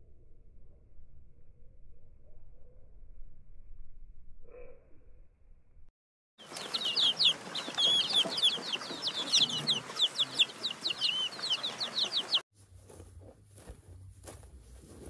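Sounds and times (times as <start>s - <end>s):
low hum: 0.0s - 5.9s
birds peeping: 6.4s - 12.4s
faint clicks: 6.5s - 6.9s.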